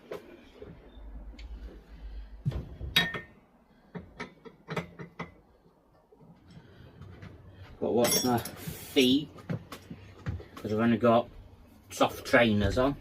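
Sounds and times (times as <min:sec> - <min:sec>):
metal tools clicking and clunking: 0:02.9 - 0:05.4, 0:08.0 - 0:08.6.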